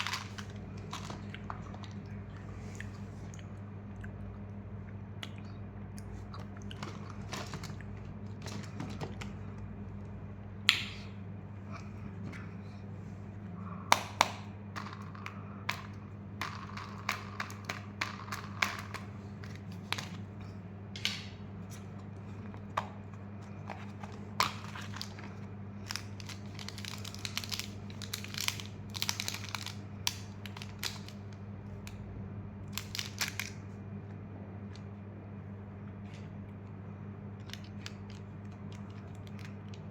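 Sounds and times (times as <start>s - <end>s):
low electrical hum: 0.0s - 39.9s
plastic wrappers crinkling and tearing: 23.8s - 31.4s, 32.7s - 33.6s.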